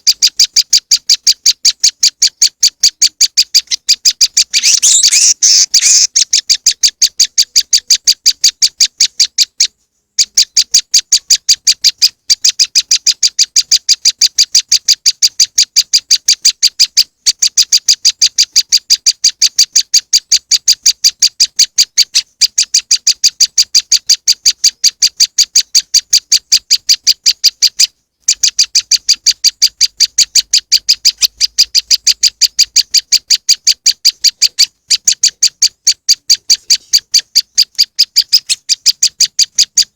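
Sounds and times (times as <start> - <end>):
rapid high bird calls: 0.0 - 39.9.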